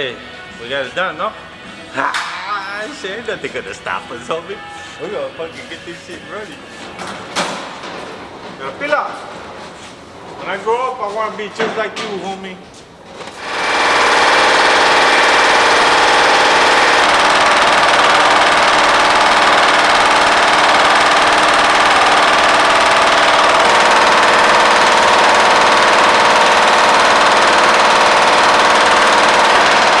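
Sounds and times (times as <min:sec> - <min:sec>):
vee eight engine idling: 0:00.0 - 0:06.7, 0:13.4 - 0:30.0.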